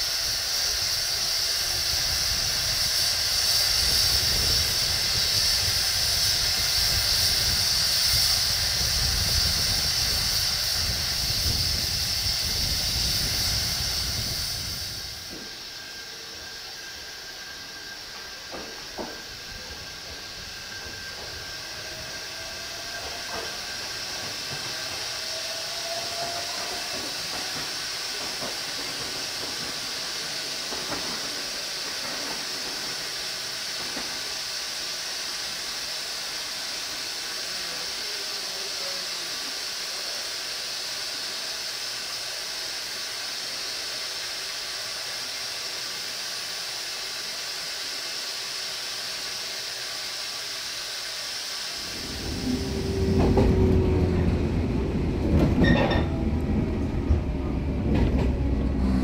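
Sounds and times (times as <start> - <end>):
electric train approaching: 0.0 - 40.2, 51.6 - 59.0
high hiss: 0.0 - 59.0
rising whine: 51.8 - 59.0.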